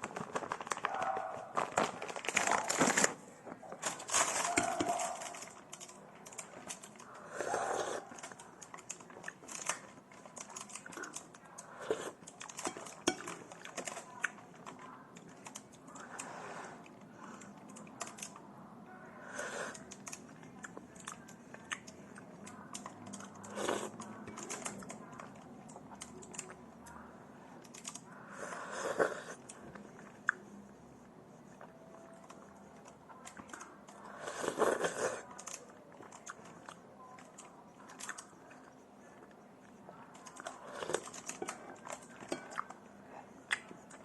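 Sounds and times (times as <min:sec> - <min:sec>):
wet mouth clicks and chewing: 0:43.5 - 0:44.0.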